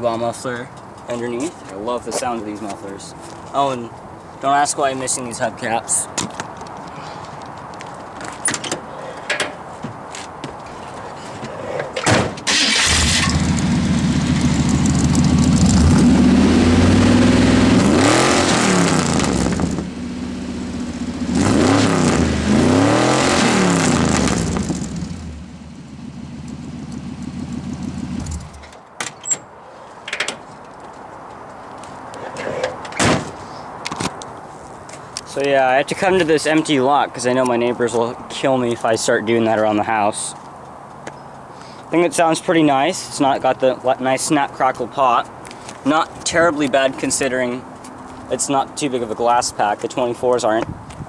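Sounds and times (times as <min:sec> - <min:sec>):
car engine idling and revving: 0:12.8 - 0:28.7.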